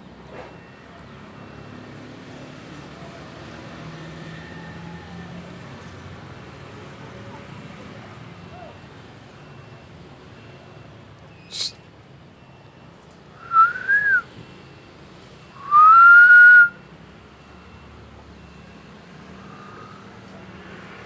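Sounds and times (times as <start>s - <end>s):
whistled notes: 11.5s - 11.8s, 13.4s - 14.3s, 15.6s - 16.8s.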